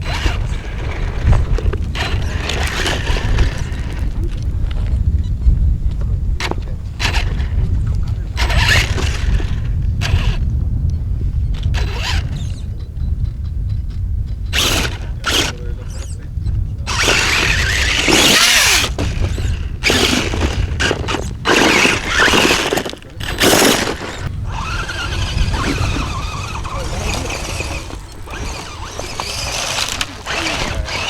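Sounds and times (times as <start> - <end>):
rc car motor whining: 0.0 - 5.2, 6.4 - 10.6, 11.3 - 12.7, 14.4 - 31.0
wheels spinning in dirt: 0.0 - 31.0
wind rumble on microphone: 0.0 - 31.0.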